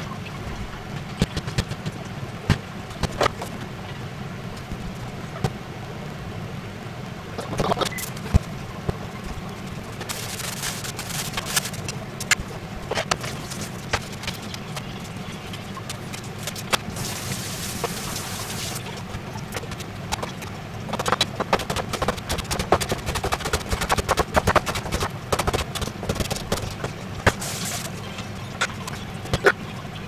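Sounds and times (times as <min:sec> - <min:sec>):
steady low hum: 0:00.0 - 0:30.0
hissing noise: 0:16.9 - 0:19.0, 0:27.2 - 0:28.2.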